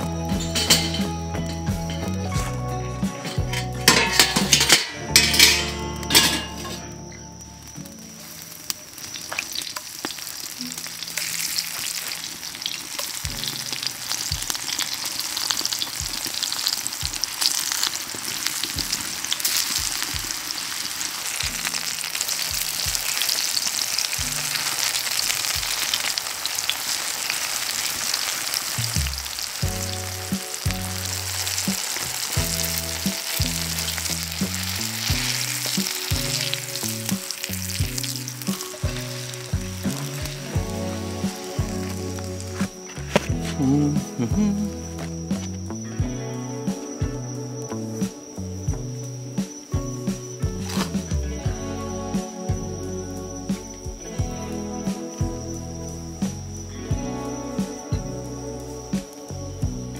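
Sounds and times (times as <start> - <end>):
background music: 0.0 - 9.6, 10.4 - 20.5, 28.8 - 59.9
food frying in hot oil: 7.6 - 43.0.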